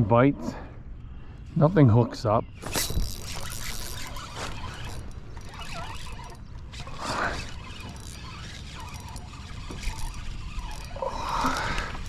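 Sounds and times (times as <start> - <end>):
faint wavering squeak: 2.5 - 12.0.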